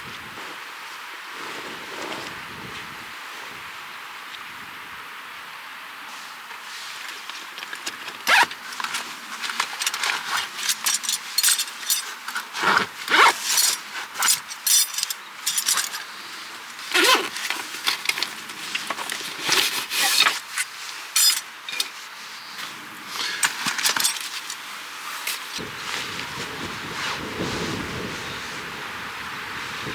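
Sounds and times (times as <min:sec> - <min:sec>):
wind hiss: 0:00.0 - 0:07.3, 0:08.2 - 0:29.9
camping gear clinking and rattling: 0:06.9 - 0:26.2.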